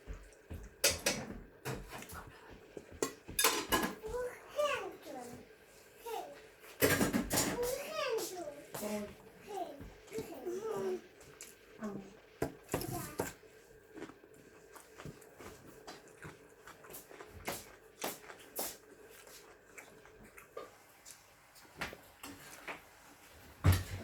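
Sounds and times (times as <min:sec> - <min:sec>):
chewing and crunching: 0:09.9 - 0:23.0.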